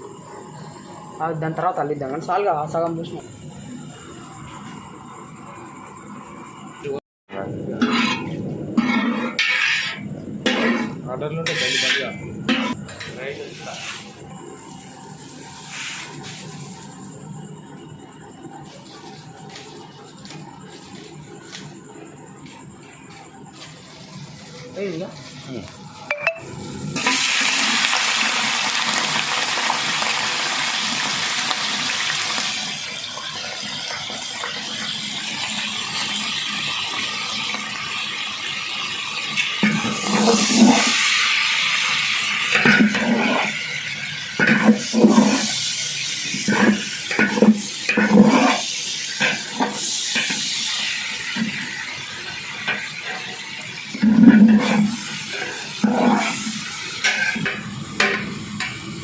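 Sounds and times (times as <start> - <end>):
tap water running: 44.4 - 45.5, 46.4 - 48.6, 51.1 - 58.7.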